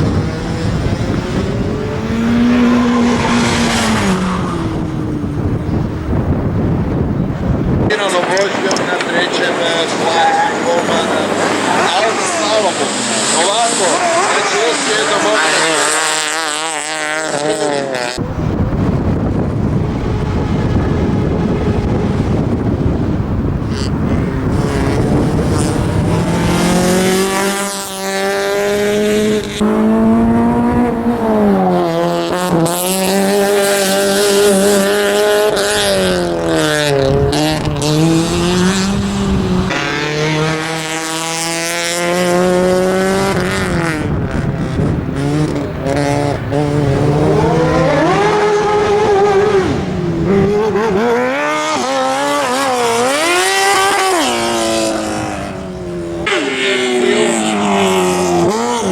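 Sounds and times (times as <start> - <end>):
dense rushing noise: 0.0 - 15.8, 18.2 - 27.0
car engine revving: 0.0 - 58.9.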